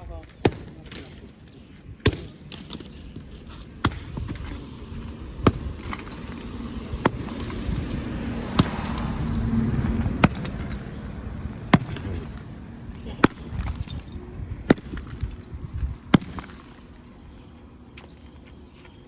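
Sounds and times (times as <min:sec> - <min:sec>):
sledgehammer striking brick wall: 0:00.4 - 0:01.3, 0:02.0 - 0:10.9, 0:11.6 - 0:16.9.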